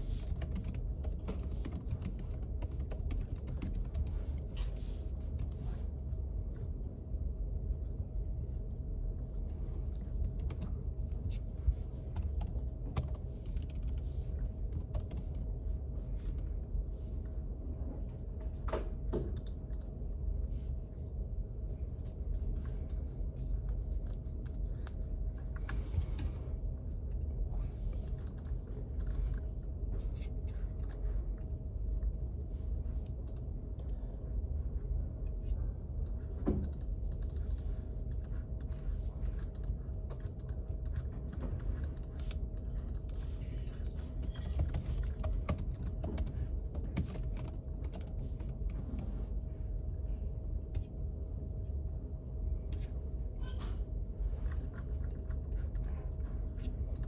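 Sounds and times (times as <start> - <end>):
steady low hum: 0.0 - 57.0
computer keyboard typing: 0.2 - 4.4, 12.1 - 15.5, 36.1 - 43.3, 43.9 - 48.8.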